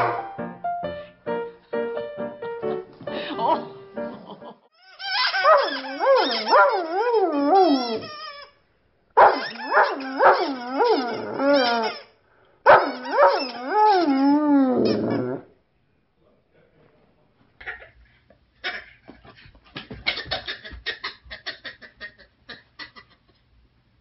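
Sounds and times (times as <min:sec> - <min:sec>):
dog howling and whining: 0:05.1 - 0:08.4, 0:09.2 - 0:12.1, 0:12.7 - 0:15.5.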